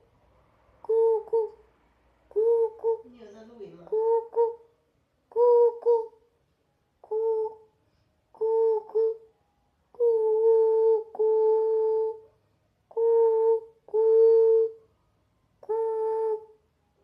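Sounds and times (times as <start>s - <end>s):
person imitating pigeon cooing: 0.8s - 1.6s, 2.3s - 3.2s, 3.8s - 4.6s, 5.3s - 6.2s, 7.0s - 7.7s, 8.4s - 9.2s, 9.9s - 12.3s, 12.9s - 14.8s, 15.6s - 16.6s.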